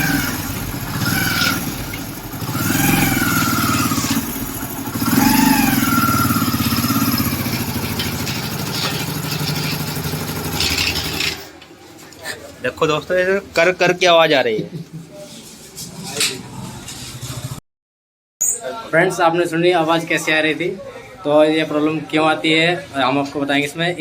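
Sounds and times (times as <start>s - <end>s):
gearbox grinding and whining: 0.0s - 11.6s
motorcycle engine running: 0.0s - 11.6s.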